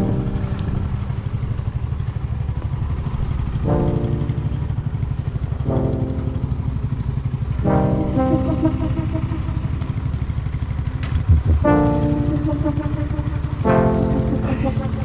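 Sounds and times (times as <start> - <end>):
music notes: 0.0 - 1.1, 3.7 - 4.9, 5.6 - 7.0, 7.6 - 15.0
motorcycle engine rumbling: 0.0 - 15.0.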